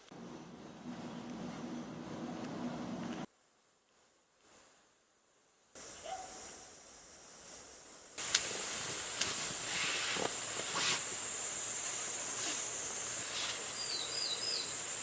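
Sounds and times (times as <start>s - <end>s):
insects droning: 3.2s - 15.0s
sharp clicks: 8.2s - 8.5s.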